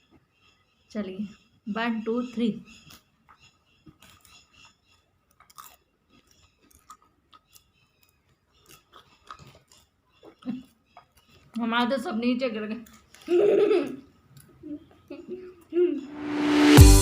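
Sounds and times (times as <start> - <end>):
popcorn being chewed: 0.0 - 15.8.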